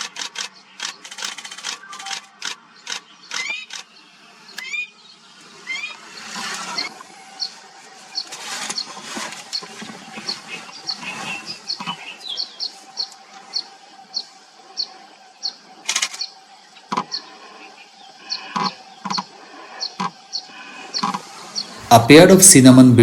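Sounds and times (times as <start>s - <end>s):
bird chirping: 0.0s - 22.8s
faint steady hum: 0.0s - 23.0s
loud rustling: 7.7s - 12.0s.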